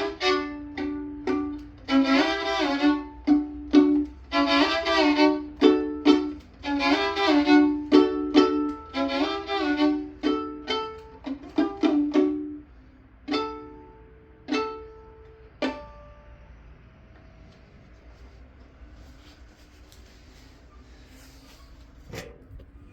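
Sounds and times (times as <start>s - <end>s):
violin playing slowly: 0.0s - 17.0s.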